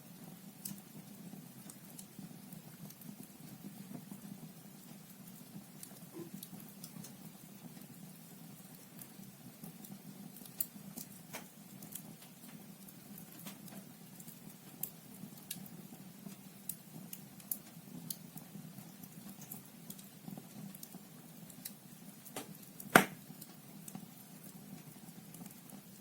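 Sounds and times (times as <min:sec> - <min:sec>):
fire crackling and popping: 0:00.0 - 0:26.0
soft steady hiss: 0:00.0 - 0:26.0
loud crack of burning log: 0:21.6 - 0:23.6.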